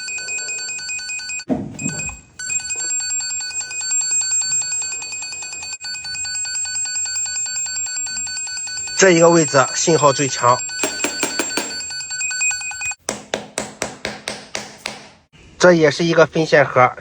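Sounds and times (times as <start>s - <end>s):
rapid electronic beep: 4.5s - 13.0s.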